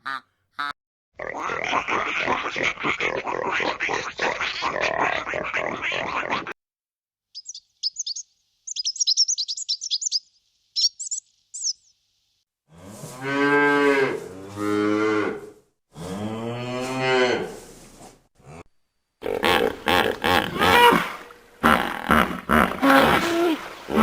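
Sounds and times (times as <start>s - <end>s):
small bird chirping: 7.3s - 12.4s
cow mooing: 12.7s - 17.6s.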